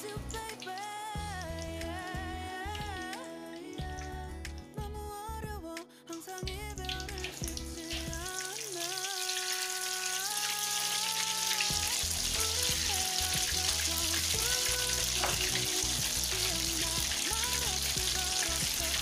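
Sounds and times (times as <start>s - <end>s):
background music with melody: 0.0s - 19.0s
egg sizzling in hot oil: 6.8s - 19.0s.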